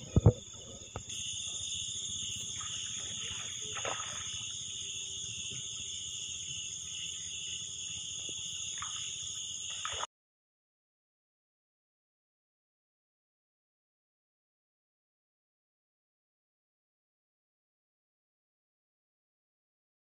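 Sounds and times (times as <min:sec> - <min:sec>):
night insects trilling: 0:00.0 - 0:10.1.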